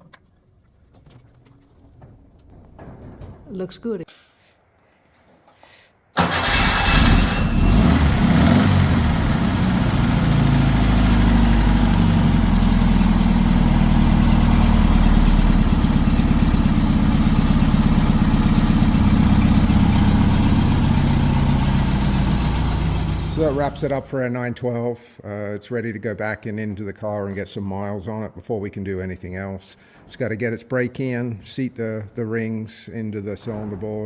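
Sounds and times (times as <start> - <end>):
car engine starting and idling: 6.2 - 24.2.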